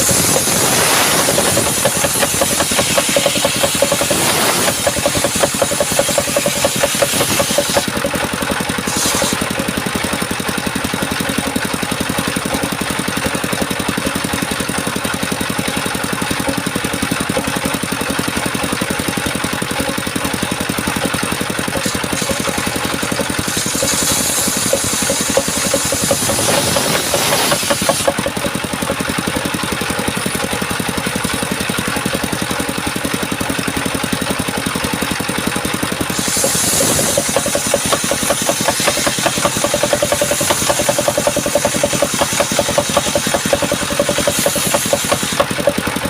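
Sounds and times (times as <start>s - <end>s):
saw blade hissing through wood: 0.0s - 8.0s, 8.6s - 9.6s, 21.8s - 28.4s, 36.0s - 45.8s
circular sawmill running: 0.0s - 46.0s.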